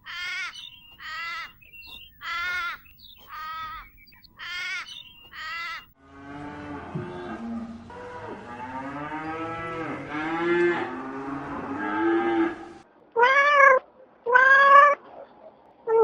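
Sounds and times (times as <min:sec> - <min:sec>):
cat meowing: 0:13.2 - 0:15.0.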